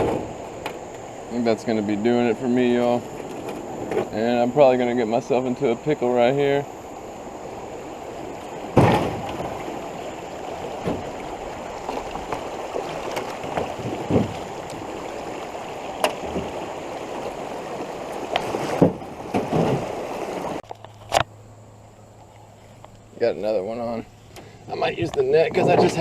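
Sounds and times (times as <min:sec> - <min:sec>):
creek water rushing: 0:00.0 - 0:20.6
sharp knocks on canoe: 0:08.7 - 0:09.6, 0:10.8 - 0:11.2, 0:13.1 - 0:14.5, 0:18.3 - 0:20.0.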